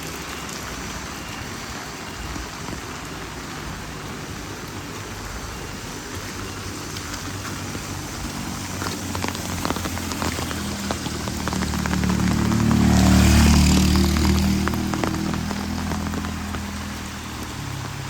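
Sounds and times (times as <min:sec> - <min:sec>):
steady rain: 0:00.0 - 0:18.0
vehicle engine passing: 0:06.8 - 0:18.0
drips and taps: 0:06.9 - 0:18.0.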